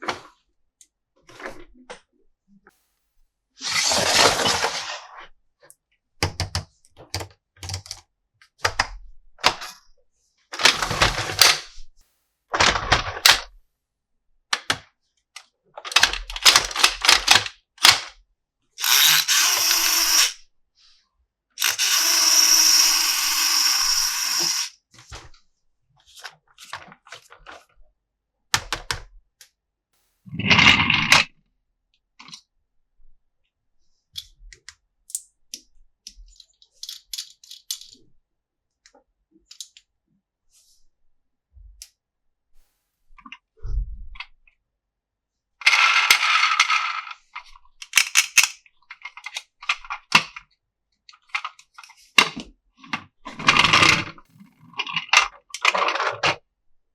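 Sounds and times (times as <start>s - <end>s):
plastic toys clicking and rattling: 10.6s - 11.7s, 15.8s - 18.2s, 18.8s - 20.3s, 21.6s - 24.7s, 36.2s - 38.0s, 45.6s - 50.4s, 51.1s - 56.4s.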